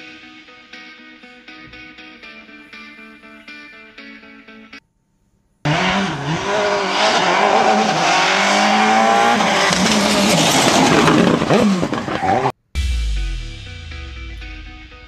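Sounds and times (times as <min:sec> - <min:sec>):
racing car engine revving: 0:05.7 - 0:12.5.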